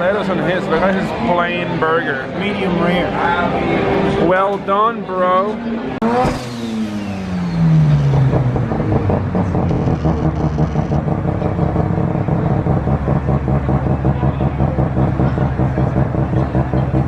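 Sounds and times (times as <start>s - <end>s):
car engine revving and idling: 5.0s - 17.0s.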